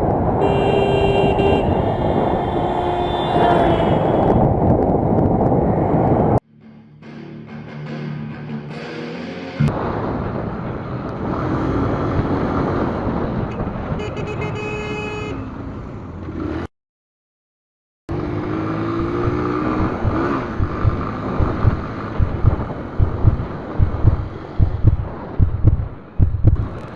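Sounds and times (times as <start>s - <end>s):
road traffic noise: 0.0s - 6.4s, 8.4s - 16.7s, 18.1s - 26.9s
vehicle horn: 0.4s - 4.5s, 13.5s - 15.5s
pulsing low thumping: 19.0s - 26.8s.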